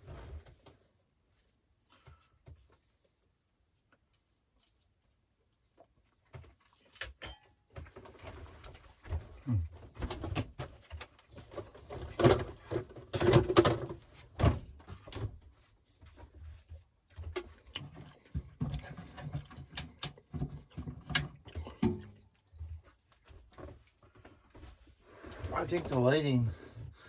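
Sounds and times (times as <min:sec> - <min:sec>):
objects knocking and clattering: 0:06.4 - 0:15.4, 0:17.1 - 0:23.8.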